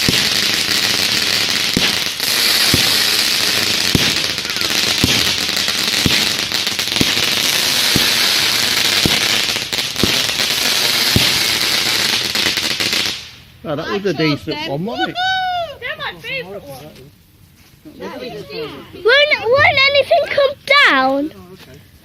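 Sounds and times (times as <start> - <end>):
firework shots thumping: 0.0 - 13.4
firework hissing and crackling: 0.0 - 13.6.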